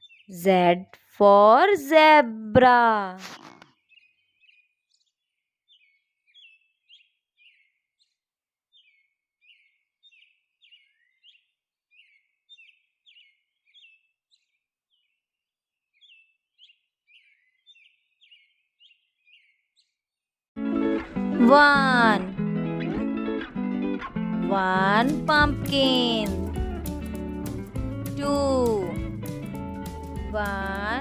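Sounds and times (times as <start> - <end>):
faint bird chirping: 3.3 - 15.2, 16.0 - 20.0.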